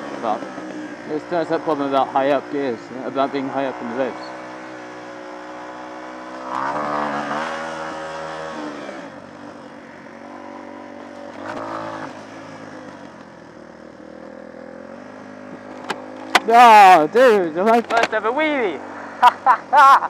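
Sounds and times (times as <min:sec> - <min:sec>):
small motorcycle engine revving: 0:00.0 - 0:18.1.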